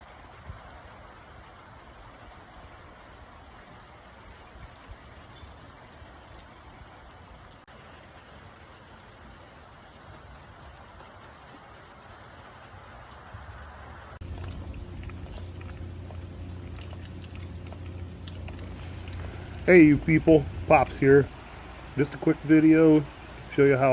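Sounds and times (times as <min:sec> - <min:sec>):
rain falling: 0:00.0 - 0:23.9
low steady hum: 0:13.8 - 0:23.9
drops ticking: 0:14.2 - 0:23.9.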